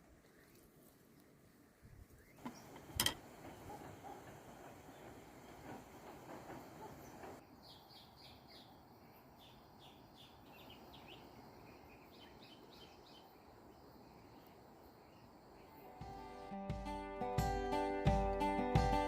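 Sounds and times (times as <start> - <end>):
bird chirping: 6.8 - 16.0.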